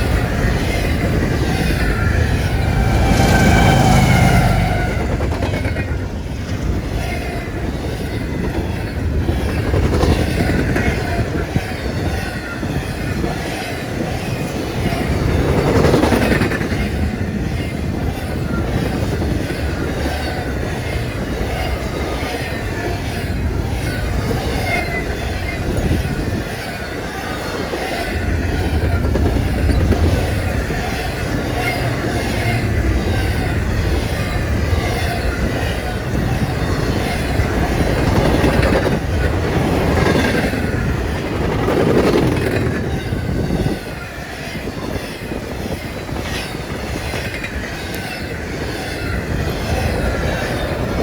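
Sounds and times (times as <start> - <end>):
steel wheels rumbling on rails: 0.0 - 51.0
wheel squeal: 0.0 - 51.0.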